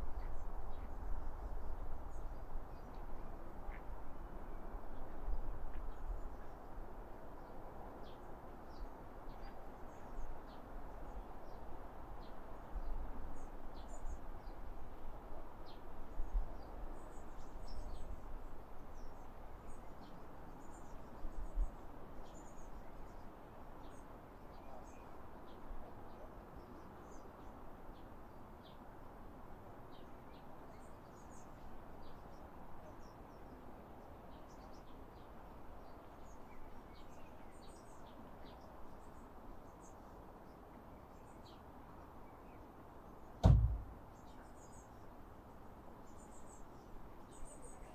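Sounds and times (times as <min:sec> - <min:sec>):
songbirds chirping: 0:00.0 - 0:47.9
low background rumble: 0:43.4 - 0:44.0.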